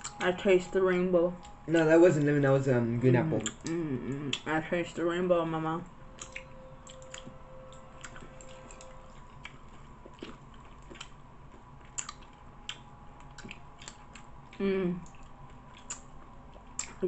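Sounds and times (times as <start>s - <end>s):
chewing candy: 6.2s - 17.0s.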